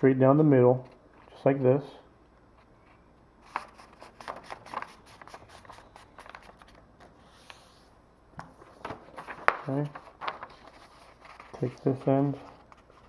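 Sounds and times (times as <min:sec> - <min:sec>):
paper folding and creasing: 0:03.4 - 0:07.9, 0:08.6 - 0:13.0.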